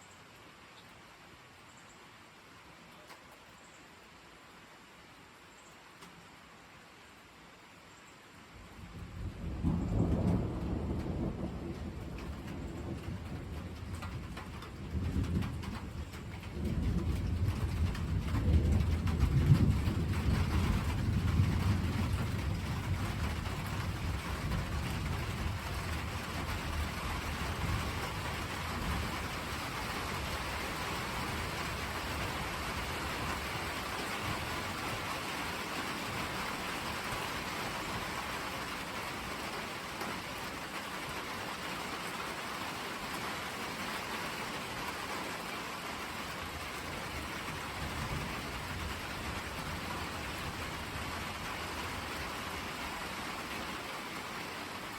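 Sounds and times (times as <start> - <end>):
steady rain: 0.0 - 54.9
thunder rolling: 8.8 - 34.9.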